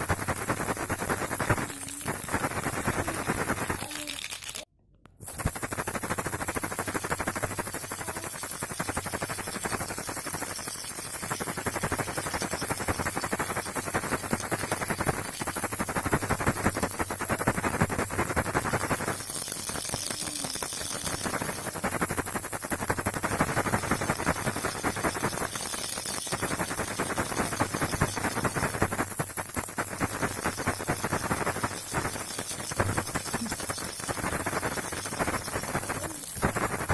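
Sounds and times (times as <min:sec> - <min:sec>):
baby rattle shaken: 0:00.0 - 0:36.9.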